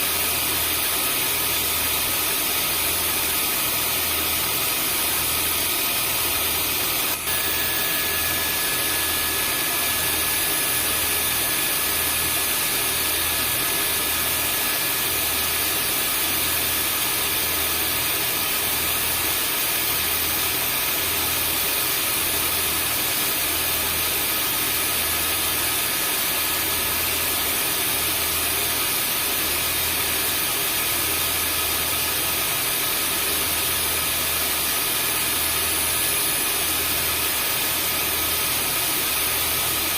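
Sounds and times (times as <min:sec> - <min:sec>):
vacuum cleaner motor running: 0:00.0 - 0:39.9
faint high whine: 0:05.5 - 0:16.0.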